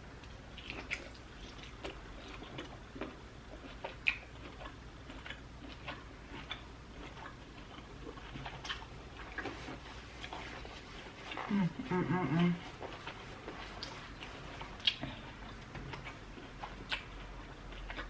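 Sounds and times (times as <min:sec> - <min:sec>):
person chewing wet mouth clicks: 0:03.6 - 0:09.4, 0:14.8 - 0:18.0.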